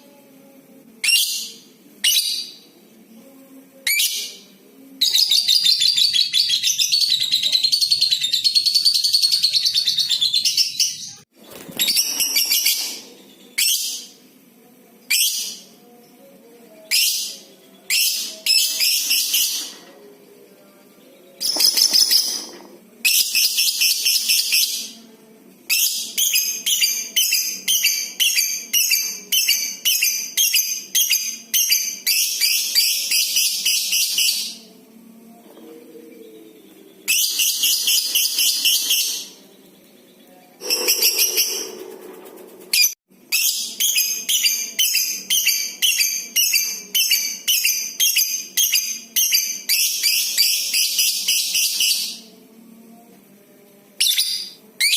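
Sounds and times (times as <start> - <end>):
lovebird chattering trills: 40.6 - 43.0.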